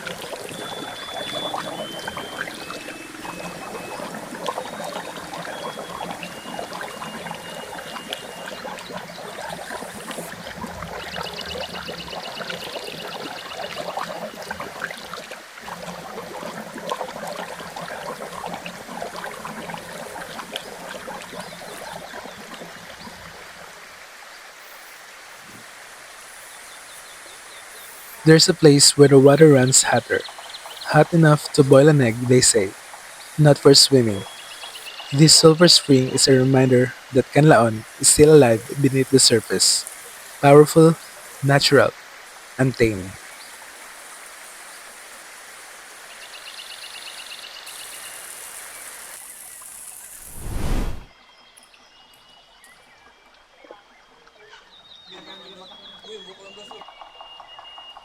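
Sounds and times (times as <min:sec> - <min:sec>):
water splashing over rocks: 0:00.0 - 0:46.2
fast trill of chirps: 0:00.3 - 0:10.3, 0:24.6 - 0:41.9.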